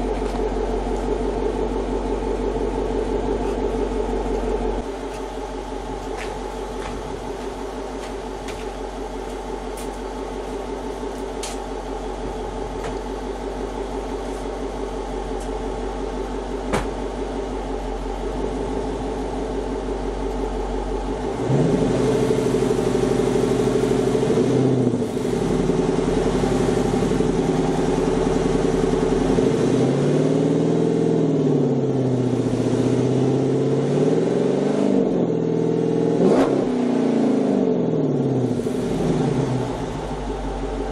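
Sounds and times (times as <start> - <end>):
car engine revving: 21.1 - 40.9.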